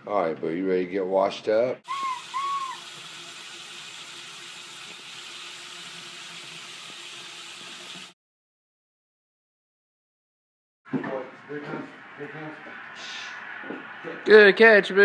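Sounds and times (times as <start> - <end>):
short high chirps: 1.9 - 2.8
tap water running into sink: 1.9 - 8.2.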